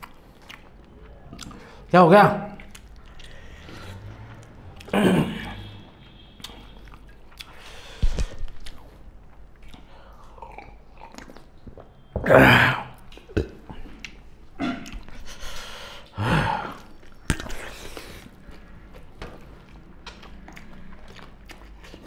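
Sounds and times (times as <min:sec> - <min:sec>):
chewing and smacking mouth noises: 0:00.0 - 0:01.9, 0:02.5 - 0:12.1, 0:13.0 - 0:22.0.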